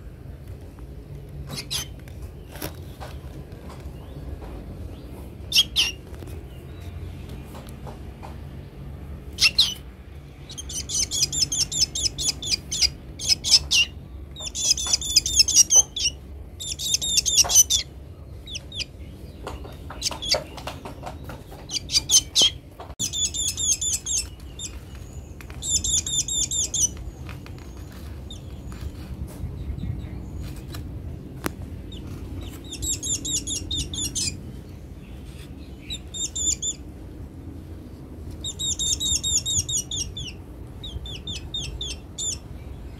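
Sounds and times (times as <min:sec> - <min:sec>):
bird begging calls: 0:05.4 - 0:06.0, 0:09.3 - 0:09.9, 0:10.5 - 0:18.9, 0:21.7 - 0:24.8, 0:25.6 - 0:27.0, 0:31.9 - 0:34.4, 0:35.7 - 0:36.8, 0:38.4 - 0:42.4.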